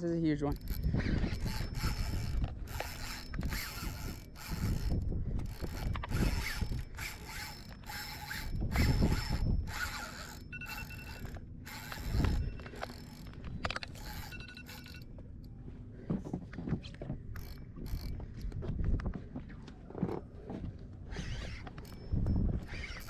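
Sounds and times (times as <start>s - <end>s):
fishing reel clicking and buzzing: 0.2s - 15.1s, 17.3s - 18.2s, 21.1s - 23.0s.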